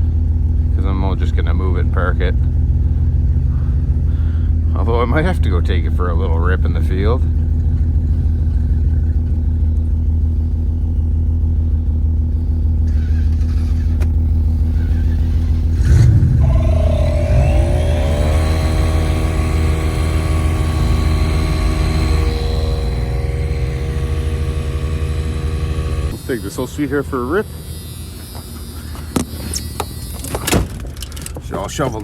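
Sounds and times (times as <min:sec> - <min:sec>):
vehicle engine idling and revving: 0:00.0 - 0:32.0
clunk: 0:28.4 - 0:31.5.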